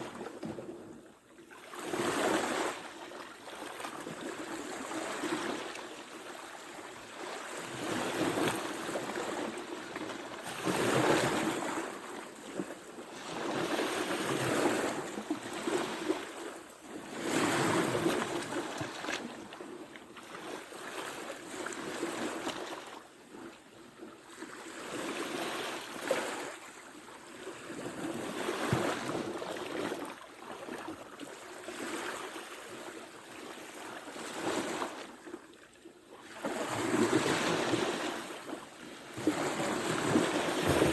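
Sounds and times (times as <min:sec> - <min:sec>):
ocean waves breaking on shore: 0:00.0 - 0:40.9
wind on microphone: 0:39.1 - 0:40.9.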